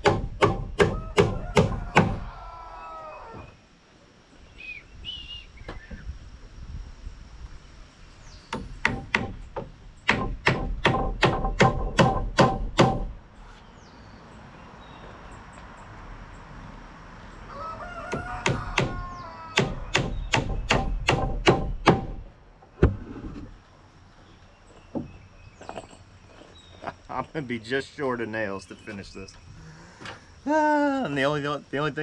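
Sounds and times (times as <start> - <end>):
chicken calling: 0.8 - 3.6, 17.4 - 20.0
hammer driving nails into wood: 8.5 - 13.1, 19.6 - 22.2.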